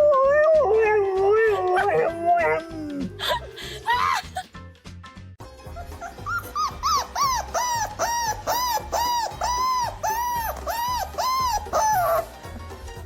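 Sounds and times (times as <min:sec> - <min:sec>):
background music with low beat: 0:00.0 - 0:13.0
dog yipping: 0:05.7 - 0:12.4.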